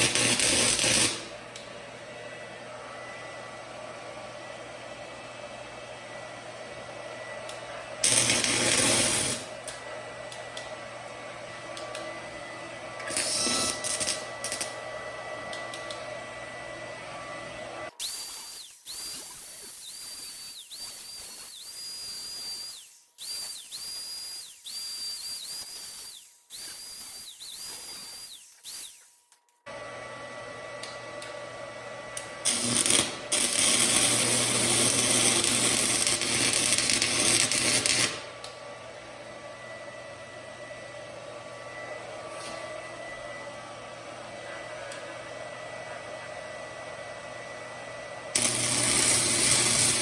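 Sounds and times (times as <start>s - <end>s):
welding arc whine: 0.0s - 1.6s, 7.5s - 10.7s, 13.0s - 15.1s, 15.7s - 30.1s, 32.2s - 38.4s, 48.3s - 50.0s
welder cooling fan humming: 0.0s - 29.0s, 29.7s - 42.1s, 42.7s - 50.0s.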